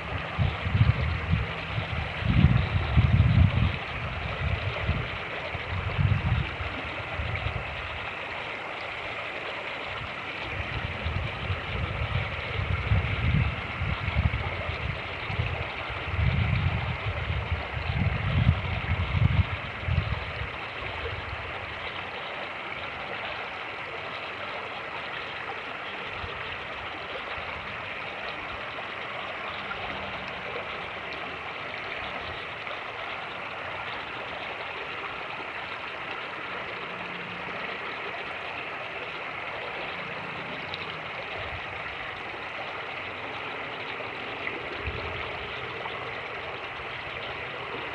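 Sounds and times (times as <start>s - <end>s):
wind buffeting microphone: 0.0s - 8.1s, 9.9s - 21.7s, 44.4s - 45.9s
creek water rushing: 0.0s - 47.9s.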